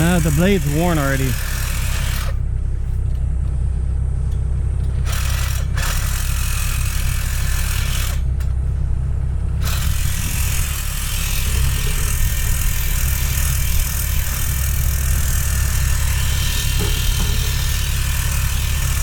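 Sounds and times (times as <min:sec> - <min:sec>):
power saw cutting metal: 0:00.0 - 0:02.4, 0:05.0 - 0:08.2, 0:09.6 - 0:19.0
excavator engine rumbling: 0:00.0 - 0:06.2.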